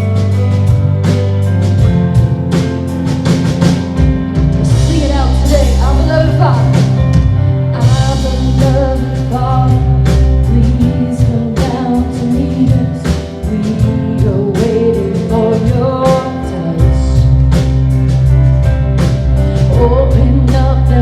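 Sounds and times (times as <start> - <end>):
drum kit hits: 0.0 - 21.0
sustained bass: 0.0 - 21.0
person singing lead vocal: 4.6 - 17.7, 19.3 - 21.0.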